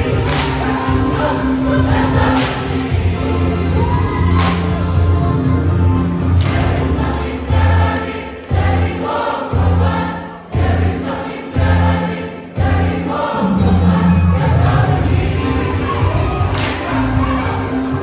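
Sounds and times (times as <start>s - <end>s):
low bass notes: 0.0s - 7.9s, 13.6s - 18.0s
choir singing a hymn: 0.0s - 18.0s.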